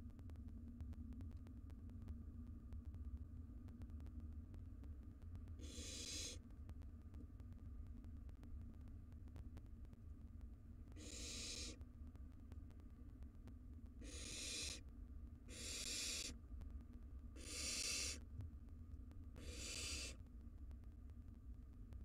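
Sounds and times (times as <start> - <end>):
low steady hum: 0.0 - 22.0
owl nestlings hissing: 5.6 - 6.4, 11.0 - 11.8, 14.0 - 14.8, 15.5 - 16.4, 17.4 - 18.2, 19.4 - 20.2.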